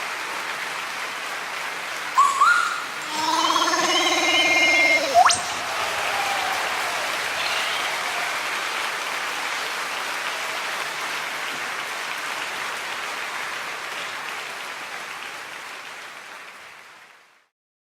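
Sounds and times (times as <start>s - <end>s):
audience applauding: 0.0s - 17.4s.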